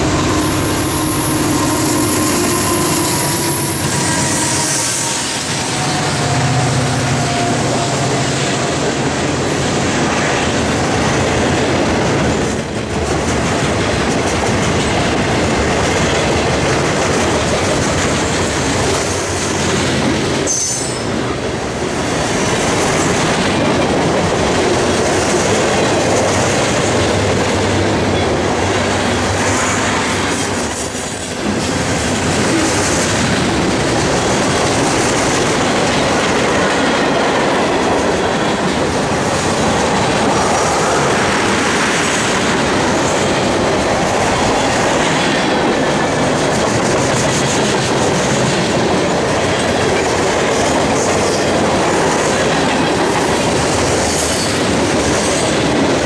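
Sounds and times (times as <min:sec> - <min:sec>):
high wheel squeal: 0:00.0 - 0:08.8, 0:16.3 - 0:21.8
locomotive diesel drone: 0:00.0 - 0:09.8
freight train rumbling: 0:00.0 - 0:56.0
steel wheels clattering on rails: 0:00.0 - 0:56.0.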